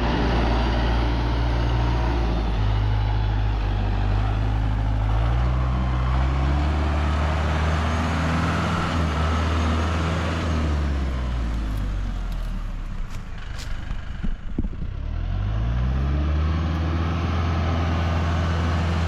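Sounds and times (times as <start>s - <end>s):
large vehicle engine running: 0.0s - 19.0s.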